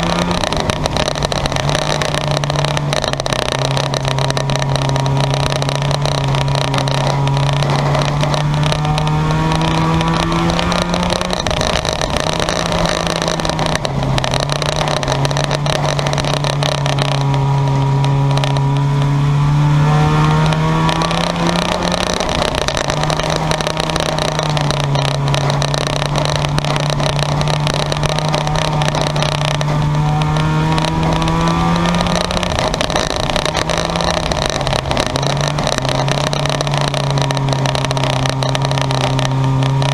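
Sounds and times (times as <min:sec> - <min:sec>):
cars passing by: 0:00.0 - 0:39.9
racing car engine drone: 0:00.0 - 0:39.9.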